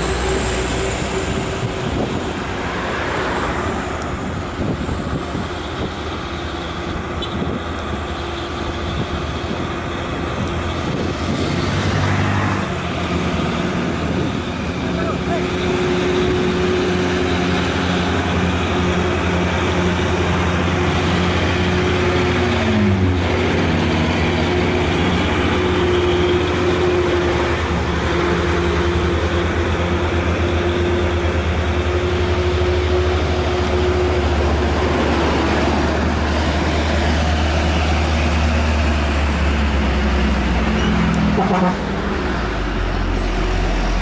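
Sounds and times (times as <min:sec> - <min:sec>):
diesel truck engine under load: 0:00.0 - 0:44.0.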